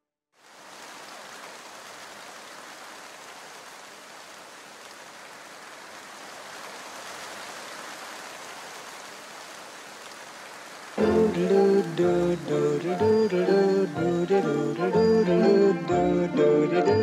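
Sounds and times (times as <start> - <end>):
rain hissing: 0.4 - 17.0.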